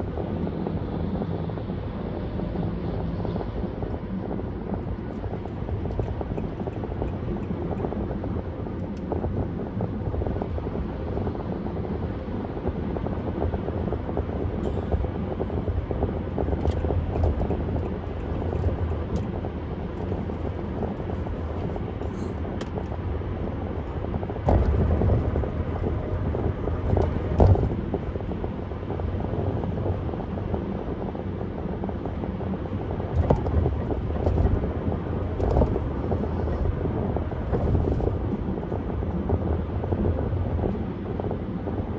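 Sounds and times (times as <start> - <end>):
tyre and wind noise: 0.0 - 41.9
car thumps: 26.8 - 28.1.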